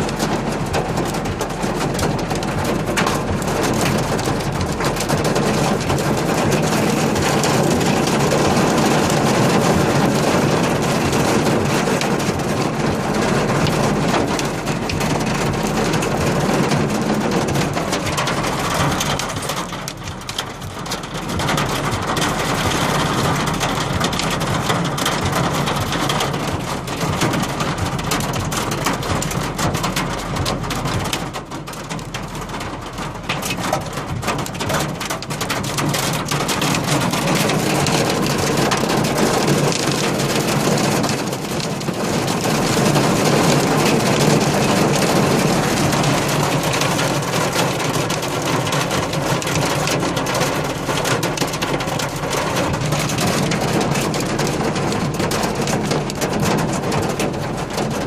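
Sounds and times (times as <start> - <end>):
hail and rain pelting: 0.0 - 58.0.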